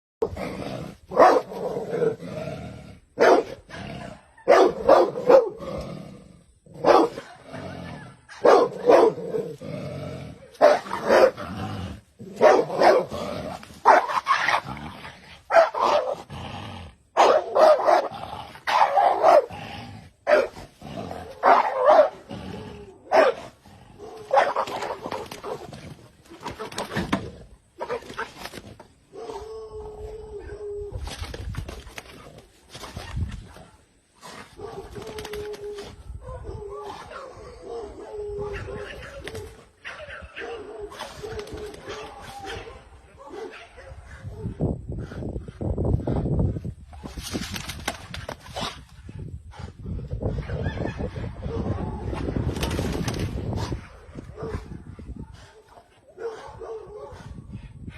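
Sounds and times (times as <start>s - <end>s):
dog barking: 1.1s - 1.5s, 3.2s - 3.6s, 4.5s - 5.6s, 6.8s - 7.4s, 8.3s - 9.2s, 10.6s - 11.4s, 12.4s - 13.1s, 13.8s - 14.1s, 15.5s - 16.2s, 17.2s - 18.1s, 18.7s - 19.5s, 20.3s - 20.6s, 21.4s - 22.2s, 23.1s - 23.4s, 24.0s - 24.6s, 36.2s - 39.2s, 39.8s - 44.6s, 55.5s - 57.3s.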